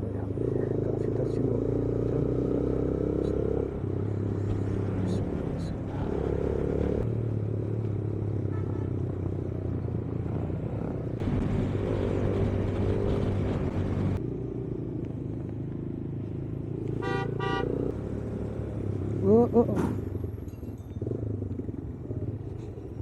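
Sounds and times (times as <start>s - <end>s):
horn beeps: 17.0s - 17.9s.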